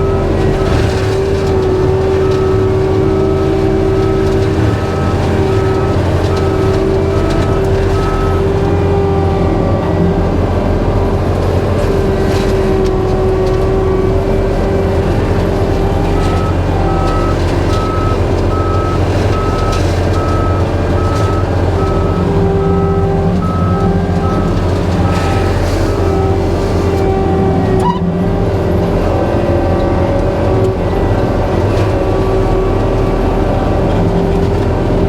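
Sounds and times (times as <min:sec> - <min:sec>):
skid steer engine running: 0:00.0 - 0:35.0
back-up alarm beeping: 0:01.7 - 0:08.9, 0:15.9 - 0:26.4.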